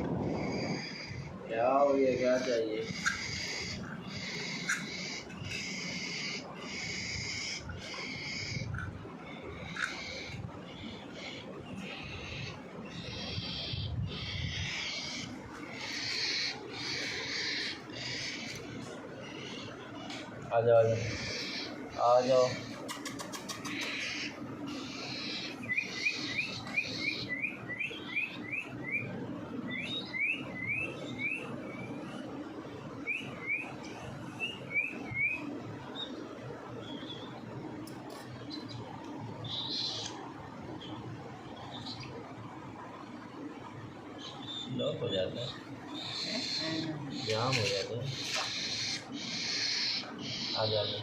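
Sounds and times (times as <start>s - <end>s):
parrot chicks begging calls: 0.0s - 51.0s
parrot chicks hissing: 48.4s - 50.5s.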